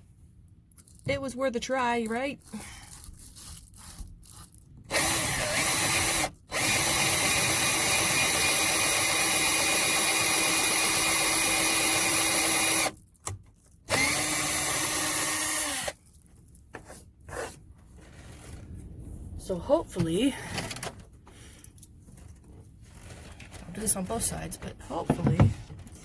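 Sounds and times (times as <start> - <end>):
power drill boring: 4.9 - 13.0, 13.9 - 16.0.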